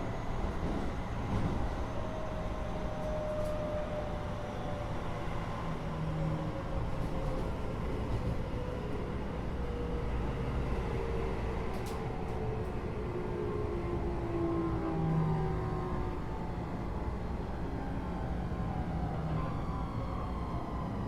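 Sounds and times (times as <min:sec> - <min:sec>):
train interior rumble: 0:00.0 - 0:04.4, 0:05.2 - 0:21.0.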